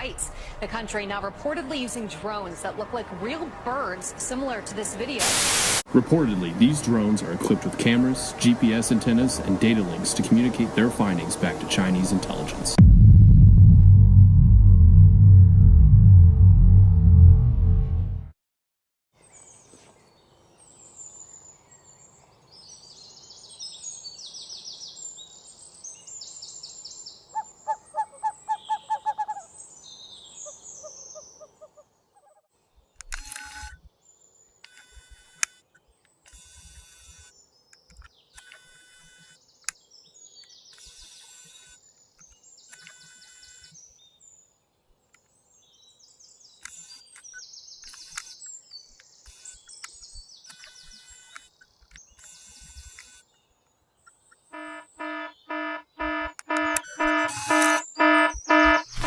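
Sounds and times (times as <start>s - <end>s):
wild birds chirping: 19.2s - 33.0s, 41.9s - 59.0s.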